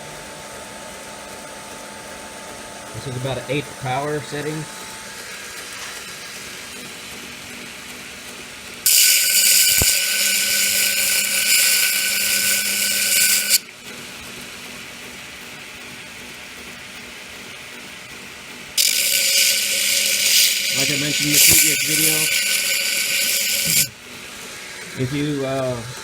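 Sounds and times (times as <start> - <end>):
belt grinder humming: 8.8 - 13.7, 18.8 - 24.0
rough grinding on belt: 8.9 - 13.6, 18.8 - 23.9.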